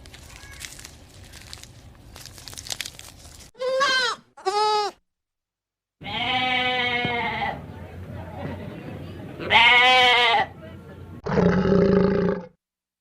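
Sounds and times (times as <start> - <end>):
faint crunching and rustling: 0.0 - 3.6
goat bleating: 3.6 - 5.0, 6.0 - 7.6, 9.4 - 10.5.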